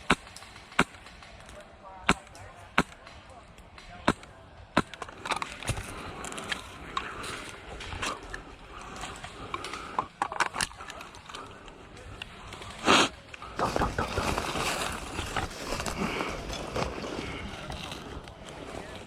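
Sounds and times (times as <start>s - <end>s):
rustling through brush: 10.7s - 19.0s.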